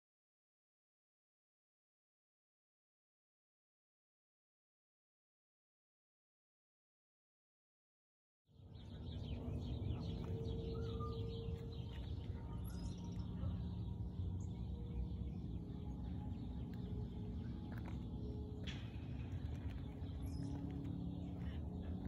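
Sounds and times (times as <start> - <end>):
low outdoor rumble: 8.6 - 22.0
small birds chirping: 8.6 - 22.0.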